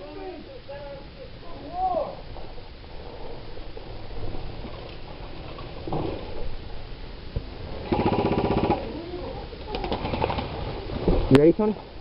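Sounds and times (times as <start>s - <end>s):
airsoft gun rapid fire: 7.8s - 8.9s.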